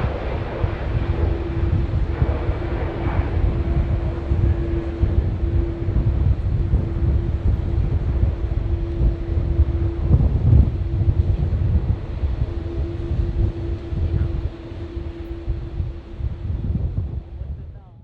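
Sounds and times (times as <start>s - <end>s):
jet engines humming: 0.0s - 17.9s
wind buffeting microphone: 0.0s - 18.0s.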